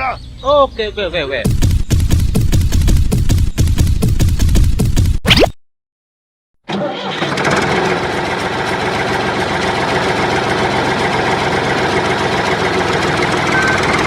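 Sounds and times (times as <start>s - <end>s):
repeating beep: 5.2s - 5.6s
tractor engine idling: 7.9s - 14.0s.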